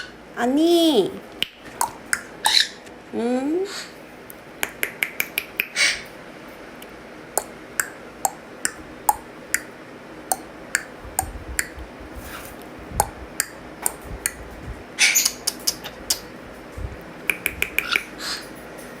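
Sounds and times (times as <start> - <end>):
soft low thumps: 10.8 - 14.9.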